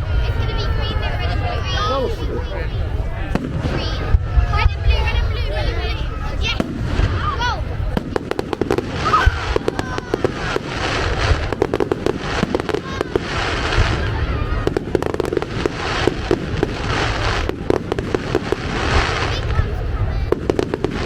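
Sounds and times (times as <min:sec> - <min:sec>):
fireworks bangs and crackles: 0:00.0 - 0:21.0
firework whistle: 0:08.3 - 0:19.5.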